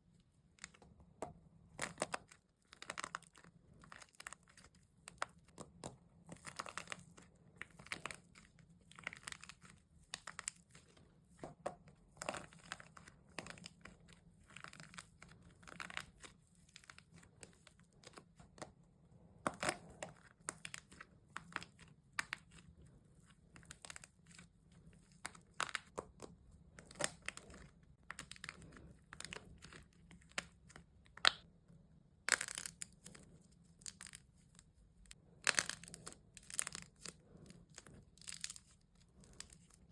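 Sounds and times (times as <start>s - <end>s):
wax crackling and crunching: 1.7s - 31.5s, 32.2s - 39.9s.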